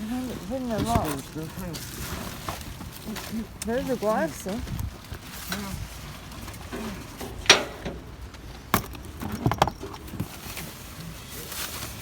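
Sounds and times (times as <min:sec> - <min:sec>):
objects knocking and clattering: 0:05.5 - 0:10.6.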